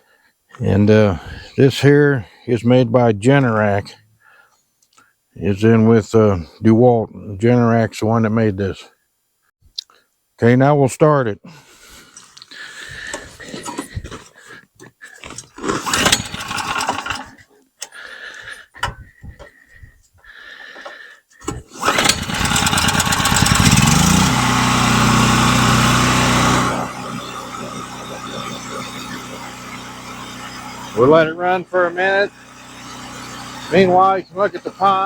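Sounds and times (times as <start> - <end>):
generator engine running: 15.3 - 17.4, 21.4 - 35.0.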